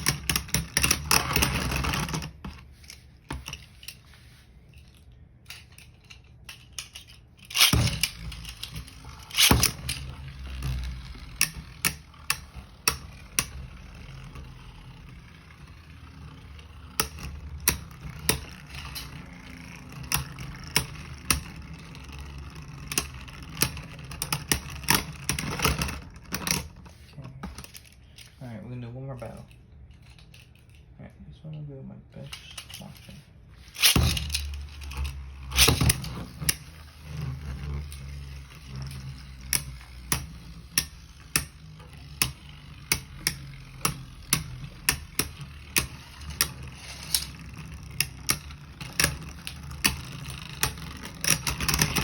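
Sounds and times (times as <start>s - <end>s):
spinning tops clicking: 5.5s - 26.4s, 33.6s - 52.0s.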